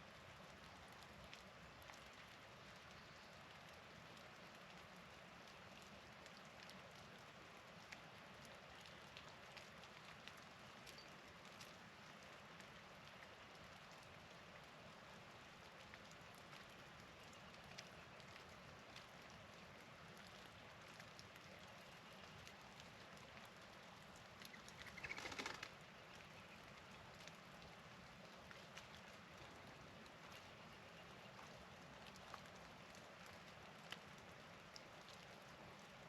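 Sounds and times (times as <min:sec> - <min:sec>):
hiss of falling precipitation: 0:00.0 - 0:36.0
light ticks: 0:08.8 - 0:14.1, 0:31.3 - 0:35.3.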